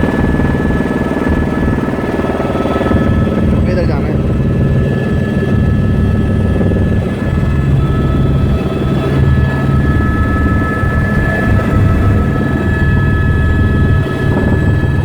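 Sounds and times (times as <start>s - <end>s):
helicopter rotor chop: 0.0s - 15.0s
high-pitched whine: 2.0s - 15.0s.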